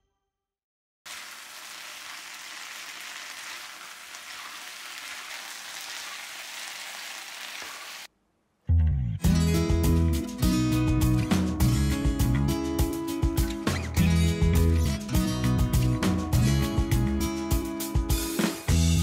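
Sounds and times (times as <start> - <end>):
food sizzling in a wok: 1.1 - 8.1.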